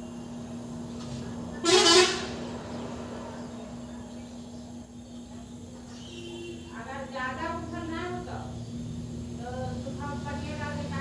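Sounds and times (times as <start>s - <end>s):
short loud horn honk: 1.6s - 2.4s.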